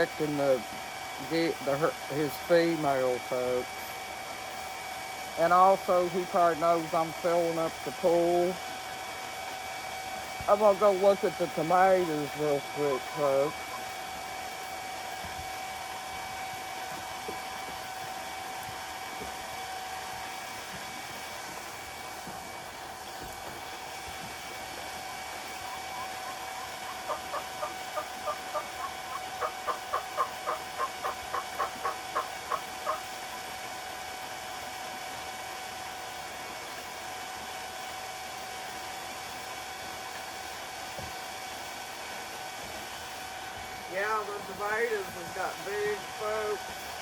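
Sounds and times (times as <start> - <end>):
electric water pump humming: 0.0 - 47.0
geese honking: 25.7 - 33.2.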